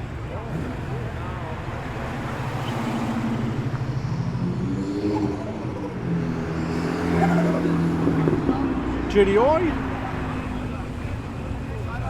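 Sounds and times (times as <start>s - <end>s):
car engine revving and pulling away: 0.2s - 11.4s.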